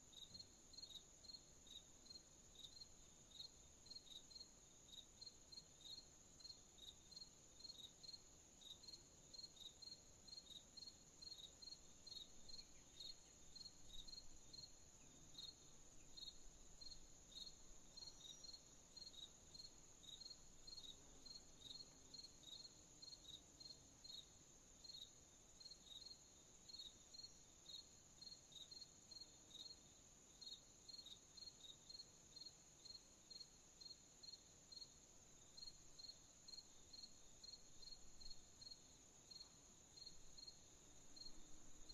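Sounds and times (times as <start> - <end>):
crickets chirping rhythmically: 0.0 - 41.9.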